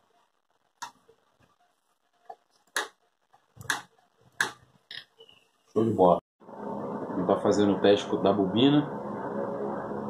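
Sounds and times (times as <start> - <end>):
sharp clicks and knocks: 2.3 - 5.1.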